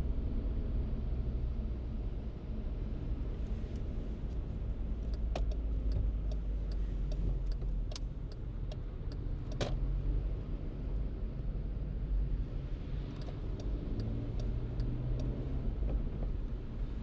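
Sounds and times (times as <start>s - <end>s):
turn signal ticking: 4.9s - 9.7s, 13.0s - 17.0s.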